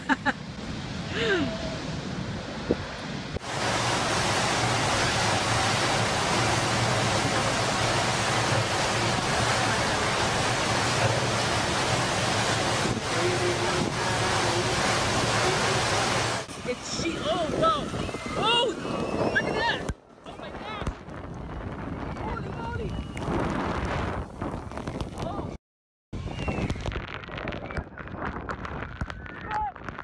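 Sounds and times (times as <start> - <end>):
surf: 0.0 - 21.1
storm wind: 0.0 - 25.6, 26.2 - 30.0.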